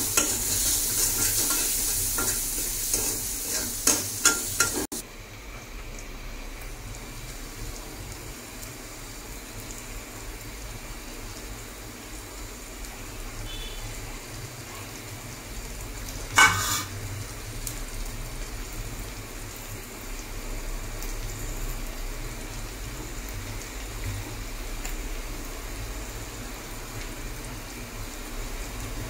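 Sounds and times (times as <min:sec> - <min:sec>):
onions sizzling in oil: 0:00.0 - 0:29.0
sharp metallic clank: 0:16.4 - 0:16.9.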